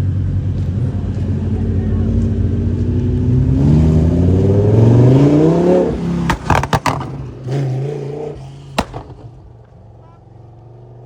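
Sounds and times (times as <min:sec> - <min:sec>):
car engine accelerating: 0:00.0 - 0:11.0
sharp cracks: 0:06.1 - 0:07.2, 0:08.7 - 0:09.8.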